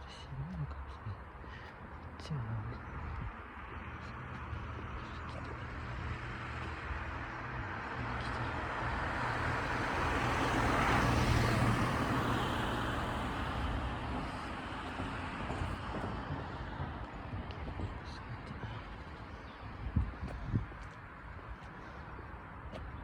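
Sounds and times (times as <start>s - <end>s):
vehicle passing by: 3.8s - 19.1s.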